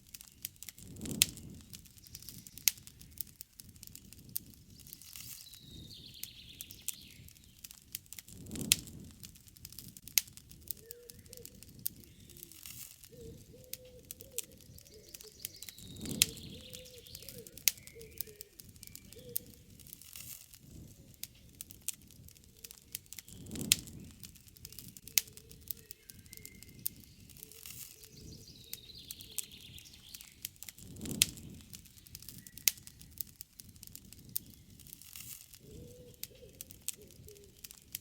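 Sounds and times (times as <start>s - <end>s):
campfire crackling and popping: 0.0s - 38.0s
birds calling: 4.7s - 7.6s, 10.7s - 20.0s, 24.6s - 33.3s, 35.6s - 37.9s.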